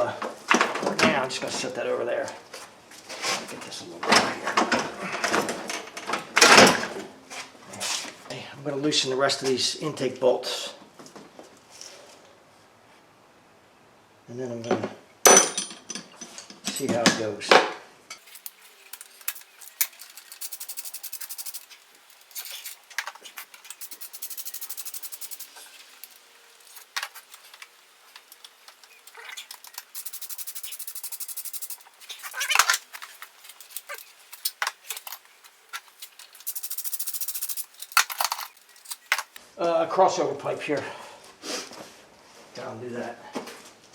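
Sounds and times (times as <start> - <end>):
metal tool clinks and knocks: 15.3 - 17.0
ratchet wrench clicking: 18.4 - 22.8, 23.4 - 26.2, 29.6 - 31.8, 36.0 - 39.2.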